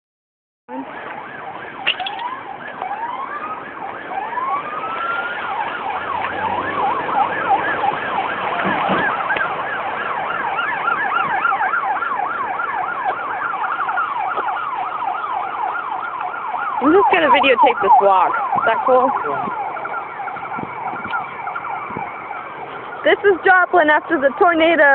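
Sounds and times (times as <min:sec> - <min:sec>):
emergency sirens wailing: 0:00.7 - 0:24.9.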